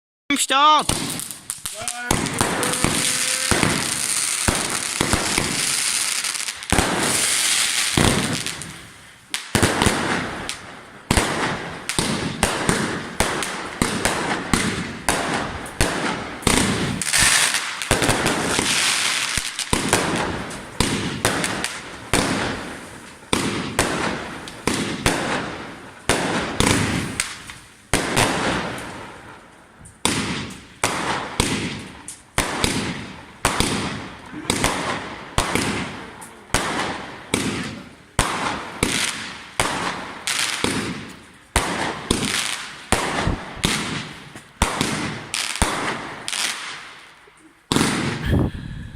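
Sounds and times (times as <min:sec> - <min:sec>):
fireworks crackling hiss: 0:00.4 - 0:48.9
fireworks bangs with echo: 0:00.7 - 0:47.1, 0:47.7 - 0:48.9.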